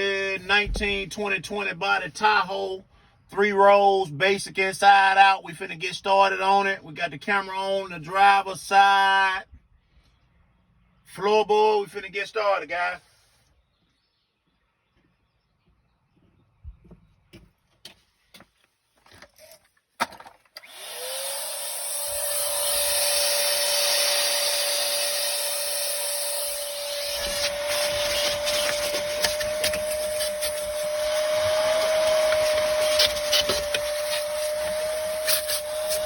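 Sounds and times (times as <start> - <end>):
vacuum cleaner motor whine: 20.6 - 36.0
nozzle scraping carpet: 25.4 - 36.0.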